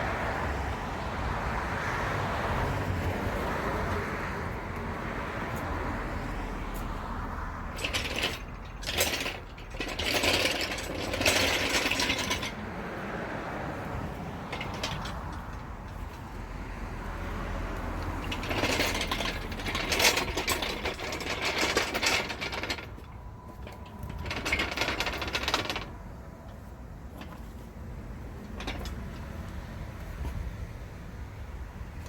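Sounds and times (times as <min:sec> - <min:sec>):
chattering mechanical clatter: 0:07.7 - 0:12.6, 0:18.1 - 0:23.1.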